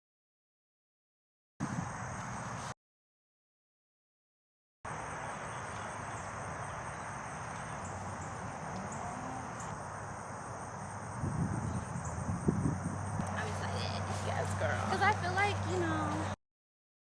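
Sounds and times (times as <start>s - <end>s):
crickets trilling: 1.6s - 2.7s, 4.9s - 16.4s.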